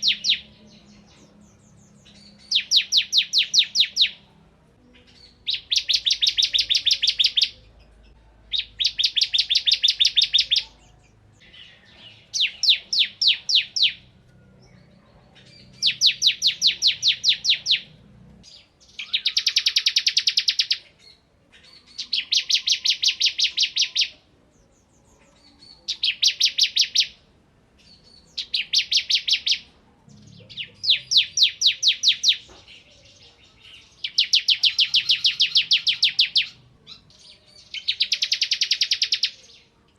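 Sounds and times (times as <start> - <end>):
bird singing rapid high notes: 0.0 - 4.2, 5.1 - 7.6.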